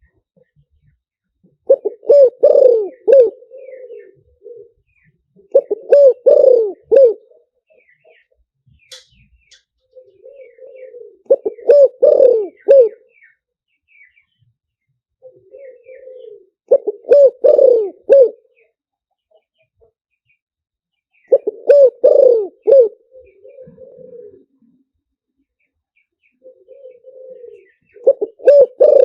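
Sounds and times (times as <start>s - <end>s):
dove cooing: 1.4s - 8.4s, 9.8s - 13.3s, 15.2s - 18.8s, 21.2s - 24.9s, 26.3s - 29.0s.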